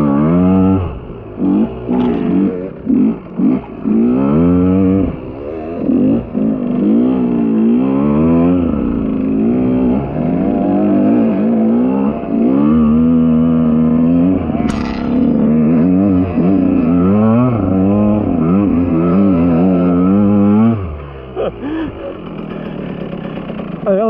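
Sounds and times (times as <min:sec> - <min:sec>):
two-stroke motorcycle engine revving: 0:00.0 - 0:24.0
sharp click: 0:14.6 - 0:15.6.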